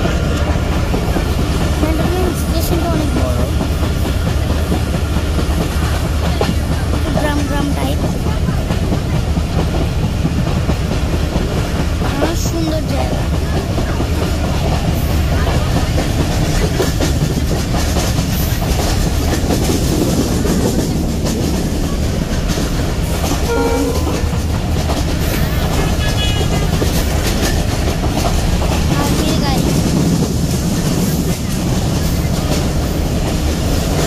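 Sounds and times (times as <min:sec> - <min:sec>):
train rumble: 0:00.0 - 0:34.0
wheels clattering on rails: 0:00.0 - 0:34.0
short high tone: 0:23.5 - 0:24.4.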